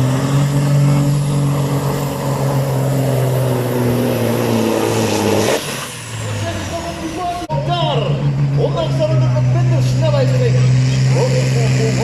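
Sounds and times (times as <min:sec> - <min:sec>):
diesel engine at high revs: 0:00.0 - 0:12.0.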